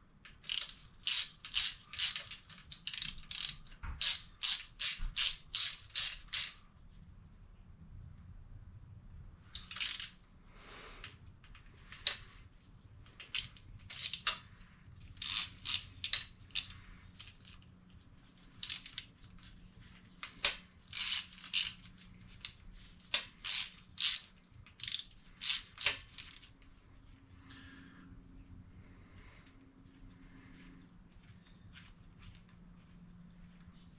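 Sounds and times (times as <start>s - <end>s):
ratchet wrench clicking: 0.4s - 6.6s, 9.5s - 10.2s, 13.2s - 14.5s, 15.2s - 17.6s, 18.6s - 19.1s, 20.3s - 26.5s.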